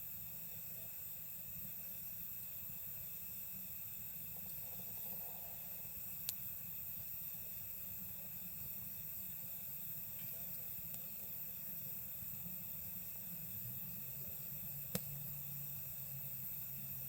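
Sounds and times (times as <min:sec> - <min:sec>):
campfire crackling: 0:02.4 - 0:17.0
sharp pop from fire: 0:14.9 - 0:15.2.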